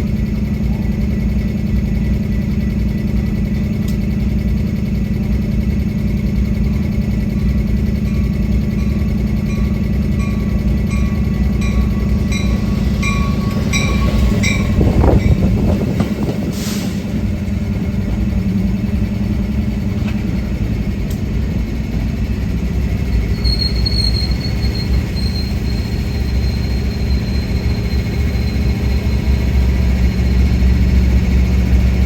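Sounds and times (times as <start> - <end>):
train rumbling past: 0.0 - 32.0
regular ringing bell: 8.0 - 15.4
high wheel squeal: 8.9 - 17.3, 23.0 - 31.1.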